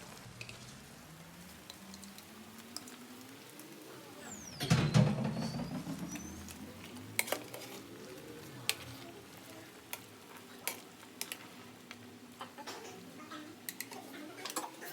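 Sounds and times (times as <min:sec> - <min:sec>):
faint steady sizzle: 0:00.0 - 0:14.9
utensil stirring and knocking pot: 0:04.6 - 0:14.9.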